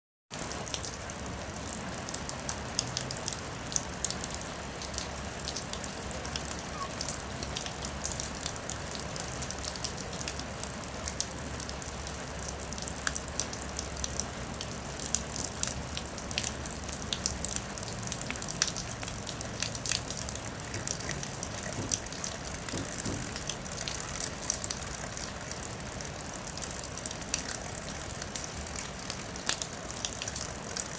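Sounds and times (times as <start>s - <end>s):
steady rain falling: 0.3s - 30.9s.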